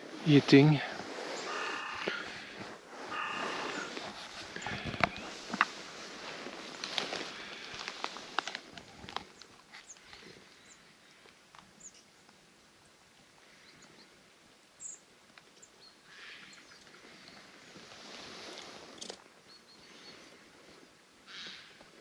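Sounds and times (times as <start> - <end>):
soft rustling hiss: 0.0 - 15.6, 16.2 - 22.0
high bird calls: 0.3 - 5.2.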